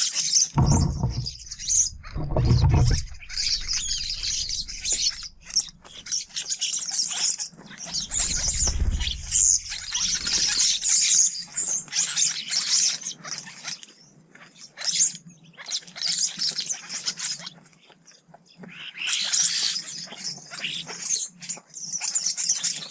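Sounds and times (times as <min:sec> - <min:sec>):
songbirds chirping and twittering: 0:00.0 - 0:22.9
low rumble: 0:00.6 - 0:05.9, 0:08.0 - 0:10.5.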